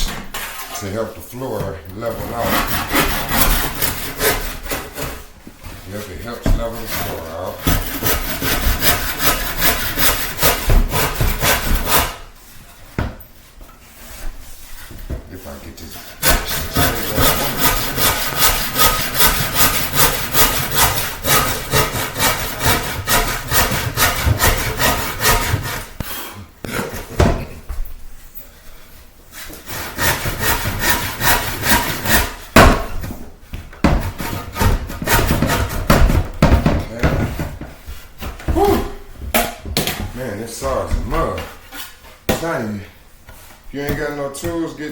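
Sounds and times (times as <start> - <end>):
handsaw cutting wood: 2.0 - 5.2, 5.9 - 12.3, 15.8 - 27.1, 29.4 - 32.7, 33.9 - 36.2.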